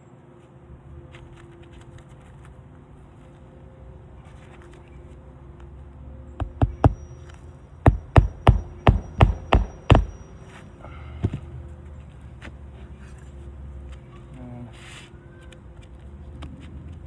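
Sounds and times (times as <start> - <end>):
hammer blows on roof nails: 6.4 - 10.6, 11.2 - 11.5.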